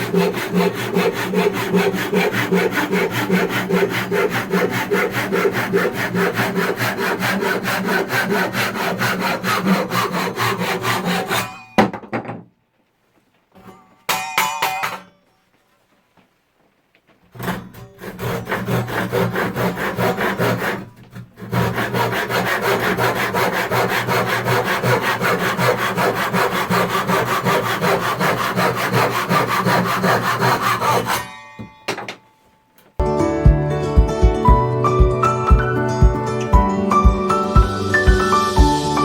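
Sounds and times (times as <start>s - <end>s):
hand saw sawing wood: 0.0s - 11.6s, 17.4s - 31.3s.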